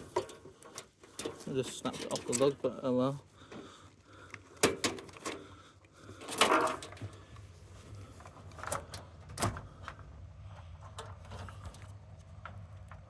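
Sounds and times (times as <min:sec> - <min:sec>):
loud clatter of parts: 0:00.0 - 0:02.7, 0:04.6 - 0:10.1
clicks and knocks of machine parts: 0:00.0 - 0:02.9, 0:04.3 - 0:07.2.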